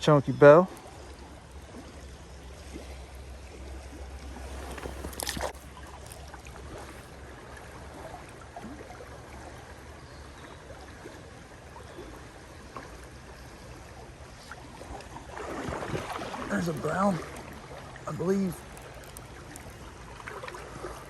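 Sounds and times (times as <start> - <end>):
creek water running: 0.0 - 21.0
rain ticking: 16.5 - 19.8.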